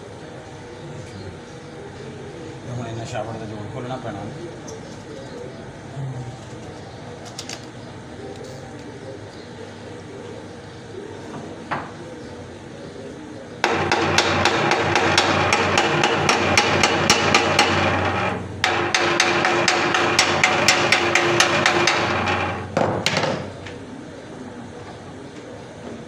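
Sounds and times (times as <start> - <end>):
steady motor hum: 12.0 - 26.0
embroidery machine metallic clacks: 13.6 - 23.6.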